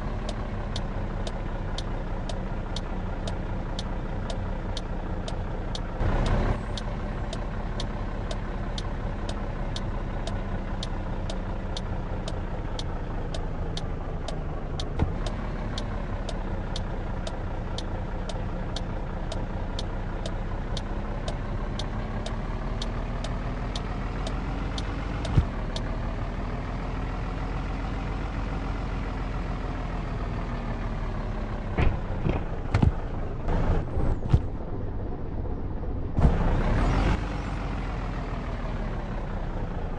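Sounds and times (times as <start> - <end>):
truck engine running: 0.0 - 39.9
light regular ticking: 0.2 - 25.9.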